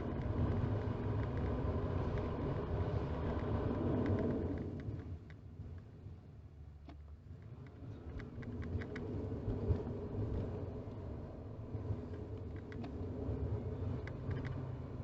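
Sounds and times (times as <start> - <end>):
car cabin road rumble: 0.0 - 15.0
light clicks and rattles: 14.0 - 14.6.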